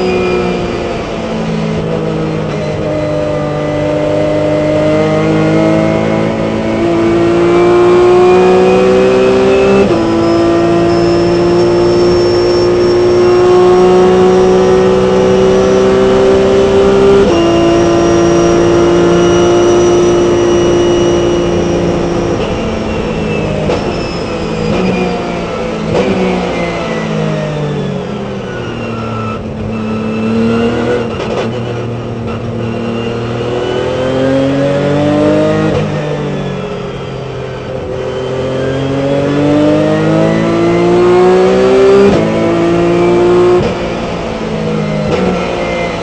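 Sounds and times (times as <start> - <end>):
race car engine at full throttle: 0.0 - 46.0.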